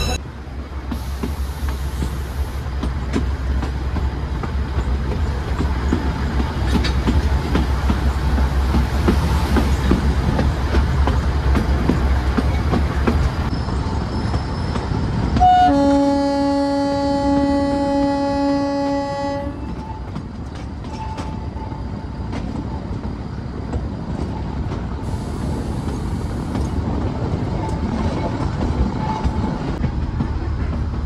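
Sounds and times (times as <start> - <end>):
train rumbling: 0.0 - 31.0
diesel locomotive horn: 15.4 - 20.2.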